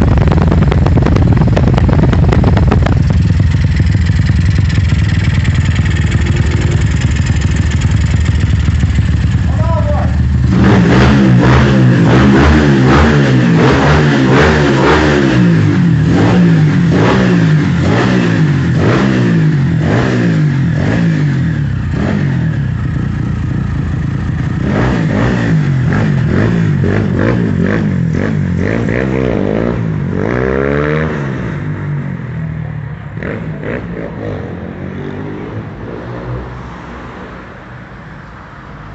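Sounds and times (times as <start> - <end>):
exhaust crackles: 0.0 - 10.9
motorcycle engine revving: 0.0 - 32.4, 33.2 - 36.5.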